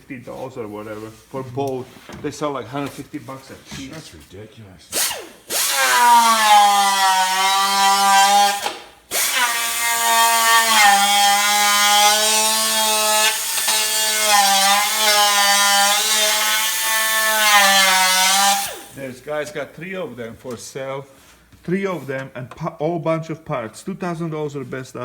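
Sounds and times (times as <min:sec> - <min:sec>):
angle grinder on metal: 0:04.9 - 0:19.0.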